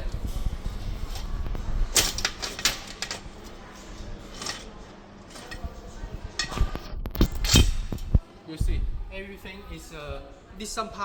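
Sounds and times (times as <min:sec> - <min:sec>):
metal parts clicking and knocking: 0:01.9 - 0:03.6, 0:04.3 - 0:04.7.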